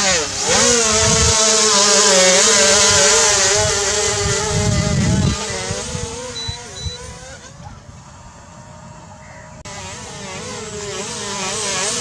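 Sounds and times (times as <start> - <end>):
electric motors and propellers whining: 0.0 - 12.0.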